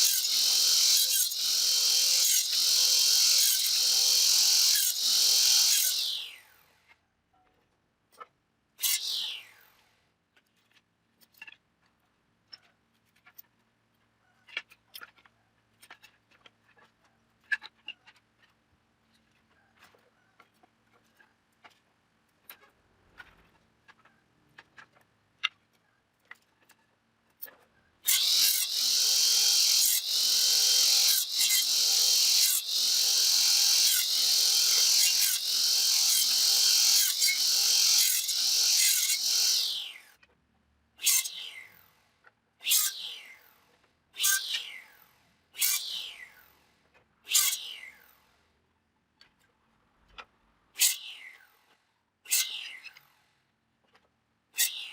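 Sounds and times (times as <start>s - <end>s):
rasping tool on wood: 0.0s - 6.2s, 28.1s - 39.8s.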